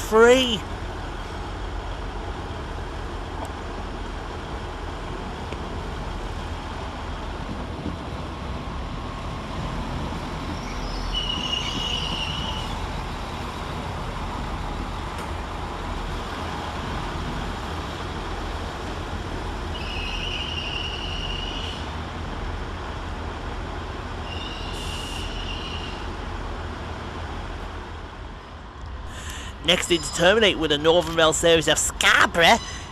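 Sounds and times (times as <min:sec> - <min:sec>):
train engines rumbling: 0:00.0 - 0:32.9
high brake squeals: 0:10.6 - 0:12.9, 0:19.7 - 0:21.9, 0:24.2 - 0:26.1, 0:32.4 - 0:32.9.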